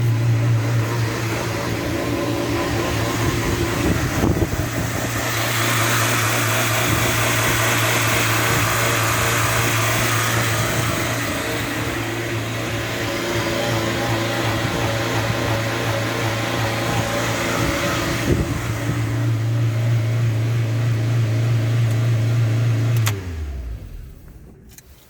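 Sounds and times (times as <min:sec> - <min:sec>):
car engine idling high: 0:00.0 - 0:25.0.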